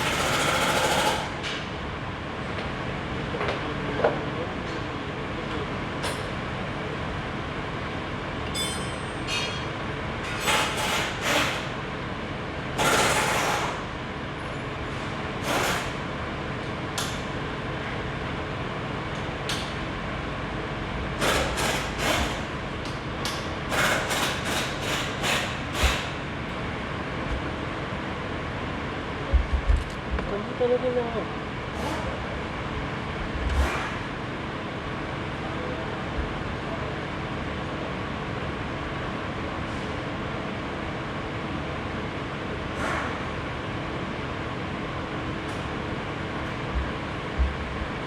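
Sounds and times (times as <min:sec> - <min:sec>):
steady mechanical hum: 0:00.0 - 0:48.0
metal tools clanking: 0:08.5 - 0:09.7.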